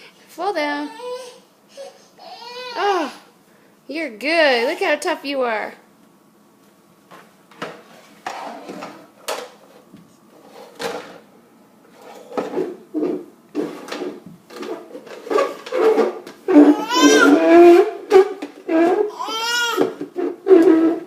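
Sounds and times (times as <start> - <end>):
box scraping across floor: 11.9 - 19.1, 20.2 - 21.0.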